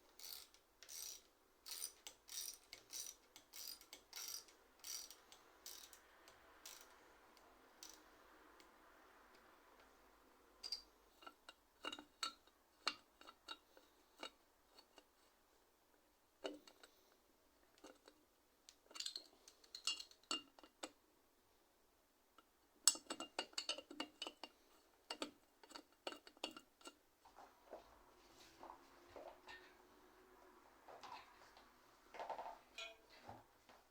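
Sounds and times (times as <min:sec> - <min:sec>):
metallic clicks of tools and parts: 0:00.2 - 0:07.0, 0:07.8 - 0:08.1, 0:10.6 - 0:13.6, 0:18.8 - 0:21.0, 0:22.9 - 0:27.0.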